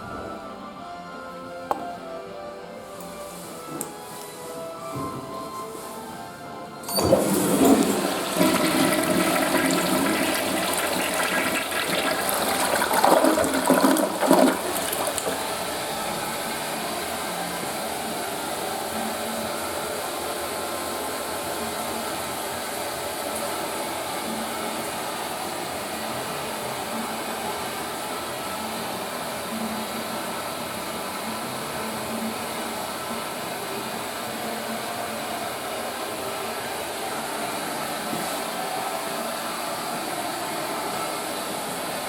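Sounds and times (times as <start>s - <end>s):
toilet cistern refilling: 6.8s - 17.8s.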